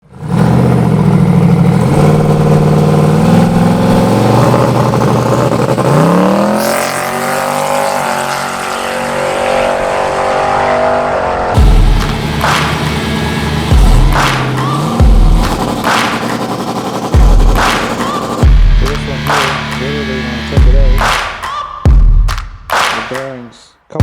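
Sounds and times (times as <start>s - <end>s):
car engine revving: 0.0s - 23.3s
deep thump: 11.6s - 12.9s.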